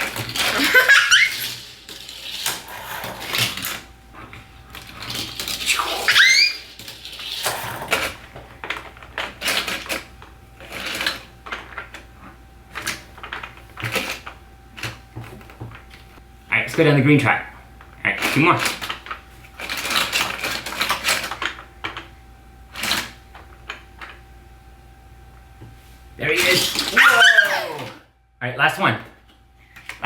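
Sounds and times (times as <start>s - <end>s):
toy trains clattering on track: 0.0s - 3.9s, 4.7s - 12.0s, 26.4s - 27.5s
child squealing: 0.6s - 1.4s, 5.7s - 6.7s, 26.4s - 28.0s.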